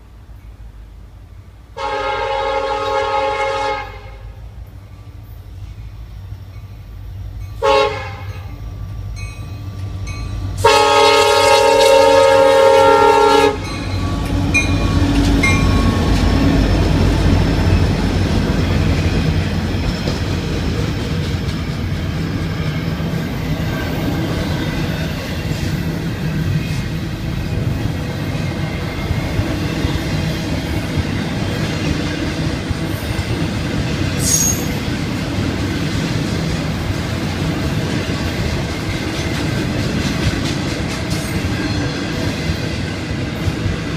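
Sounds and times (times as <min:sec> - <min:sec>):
locomotive horn blasts: 0:01.8 - 0:04.4, 0:07.6 - 0:08.6, 0:10.6 - 0:13.8
locomotive engines rumbling: 0:02.3 - 0:43.9
high squeal: 0:34.2 - 0:34.9.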